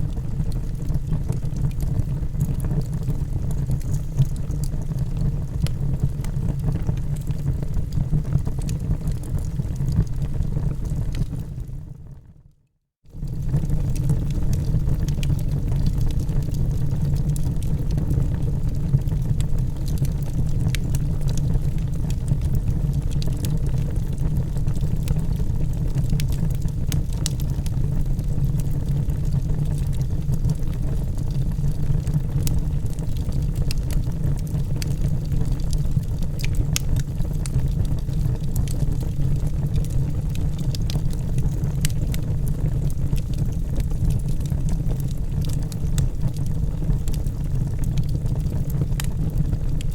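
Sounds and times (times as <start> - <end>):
fire rumbling: 0.0 - 12.0, 13.1 - 49.9
fire crackling and popping: 0.1 - 11.8, 13.1 - 49.9.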